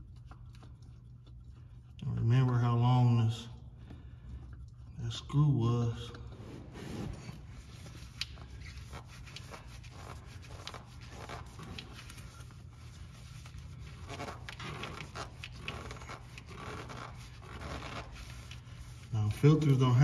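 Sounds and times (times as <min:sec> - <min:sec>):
steady low hum: 0:00.0 - 0:20.0
oil filter clicking and rubbing: 0:06.1 - 0:19.8.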